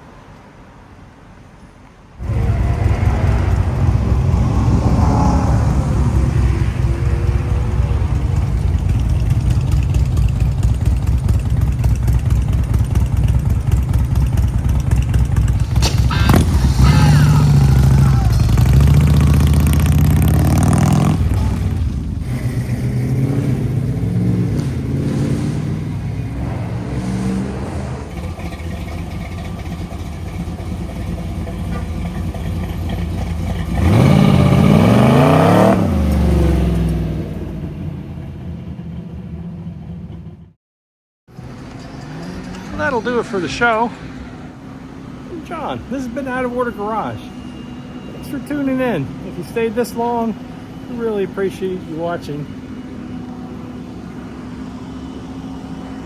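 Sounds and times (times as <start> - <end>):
cars driving away: 0.0 - 40.6, 41.3 - 56.0
car accelerating hard: 2.2 - 38.2
car engine revving: 2.2 - 38.9, 41.3 - 47.4.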